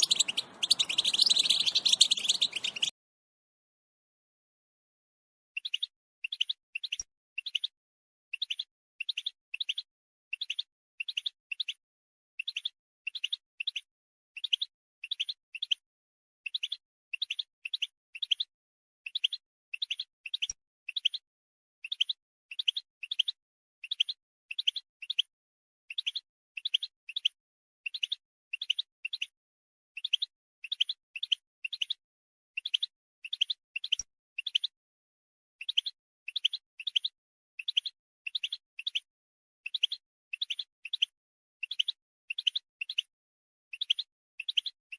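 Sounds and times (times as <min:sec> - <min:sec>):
goldfinch chirping: 0:00.0 - 0:02.9, 0:05.6 - 0:07.7, 0:12.4 - 0:13.8, 0:30.0 - 0:32.0, 0:32.6 - 0:34.7, 0:35.6 - 0:39.1, 0:39.7 - 0:43.1, 0:43.7 - 0:44.8.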